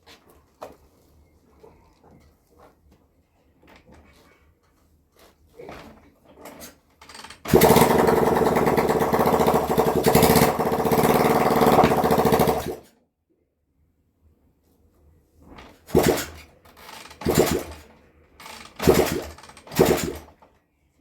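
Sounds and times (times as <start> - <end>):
motorcycle engine running unevenly: 7.5 - 12.8.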